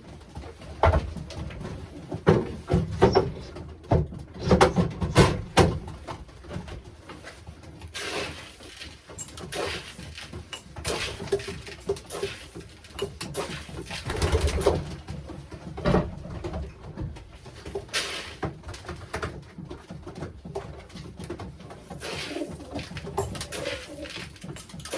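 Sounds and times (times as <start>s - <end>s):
pigeons cooing: 21.9s - 24.9s.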